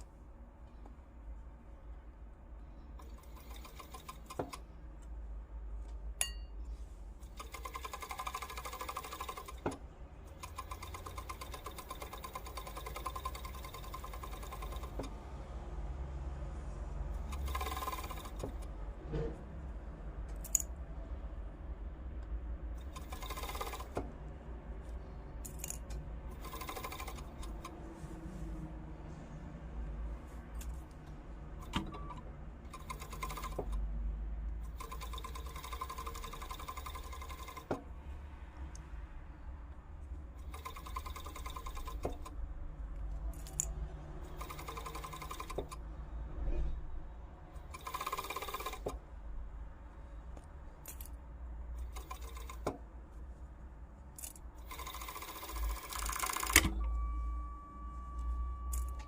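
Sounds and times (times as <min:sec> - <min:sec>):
sewing machine stitching: 0:03.0 - 0:04.6, 0:07.2 - 0:15.1, 0:17.2 - 0:18.7, 0:22.8 - 0:24.1, 0:26.3 - 0:27.8, 0:31.6 - 0:33.8, 0:34.7 - 0:37.8, 0:40.4 - 0:42.4, 0:44.2 - 0:45.8, 0:47.6 - 0:49.0, 0:51.8 - 0:52.8, 0:54.6 - 0:56.8
clicks and handling sounds: 0:24.8 - 0:26.0.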